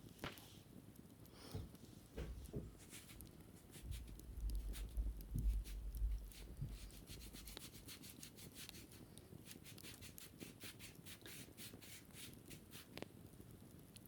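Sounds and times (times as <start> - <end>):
scratching on wicker basket: 1.9 - 13.0.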